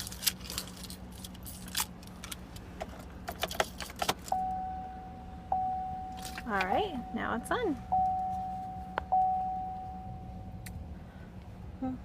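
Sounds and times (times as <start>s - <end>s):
car keys jangling: 0.0s - 4.8s, 5.6s - 6.8s.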